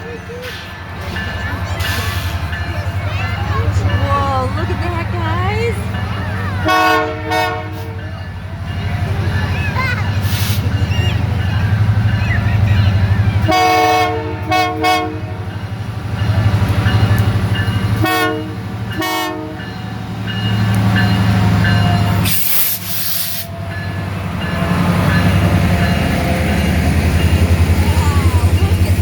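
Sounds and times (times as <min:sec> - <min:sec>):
diesel locomotive rumbling: 0:00.0 - 0:29.0
train air horn blasts: 0:06.6 - 0:08.0, 0:13.5 - 0:15.4, 0:18.0 - 0:19.6.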